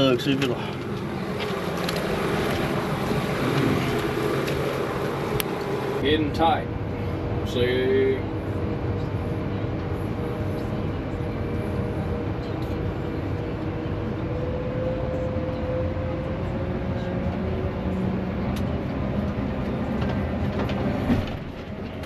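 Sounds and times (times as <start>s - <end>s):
tractor diesel engine under load: 0.0s - 8.1s.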